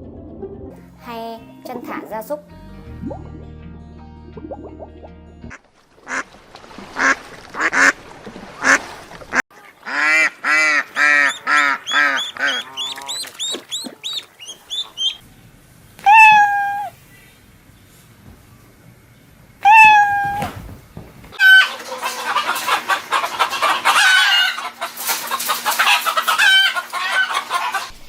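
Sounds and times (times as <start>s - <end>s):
animal calling harshly: 9.9s - 15.2s, 16.0s - 17.0s, 19.6s - 20.6s.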